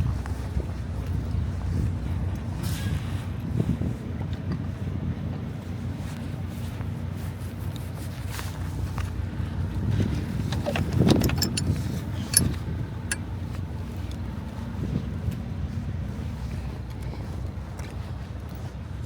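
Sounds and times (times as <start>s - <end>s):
diesel truck engine idling: 0.0s - 19.0s
wind on microphone: 0.0s - 19.0s
sharp clicks: 10.4s - 14.2s.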